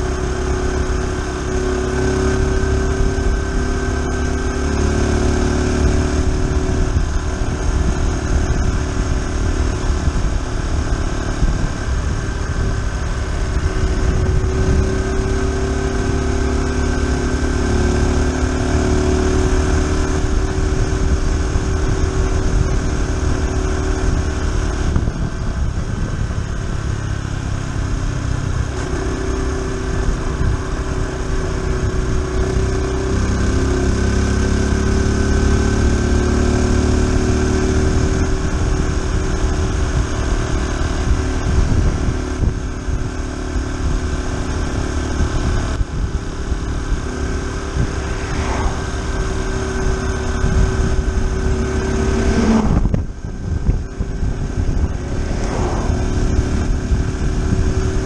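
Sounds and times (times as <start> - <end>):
low wind rumble: 0.0 - 58.0
motorcycle engine running: 0.0 - 58.0.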